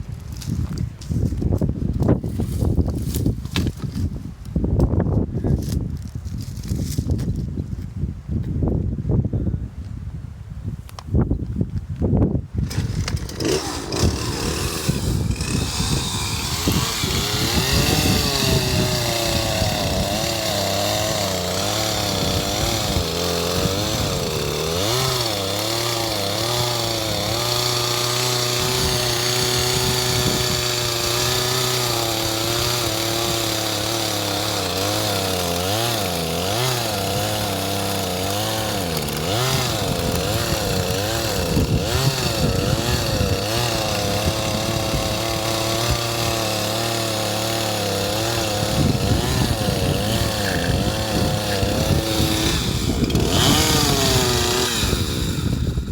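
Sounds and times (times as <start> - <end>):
chainsaw running and cutting: 12.6 - 55.9.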